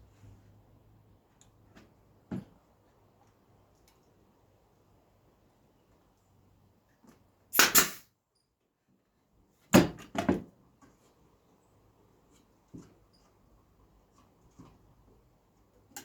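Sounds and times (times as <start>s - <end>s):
nail gun firing: 7.6s - 8.1s.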